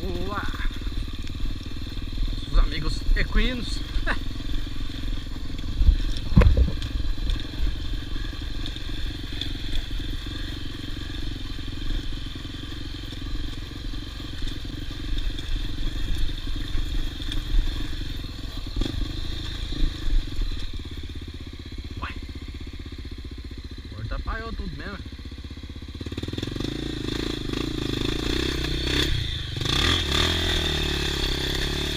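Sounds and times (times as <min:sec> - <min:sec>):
motorcycle engine at low speed: 0:00.0 - 0:31.9
motorcycle thumps and clatter: 0:04.0 - 0:21.4.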